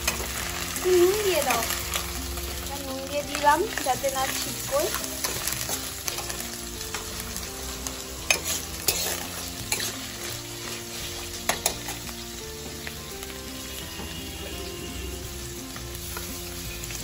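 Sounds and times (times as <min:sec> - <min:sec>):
onions sizzling in hot oil: 0:00.0 - 0:17.0
spatula scraping a pan: 0:04.3 - 0:12.2.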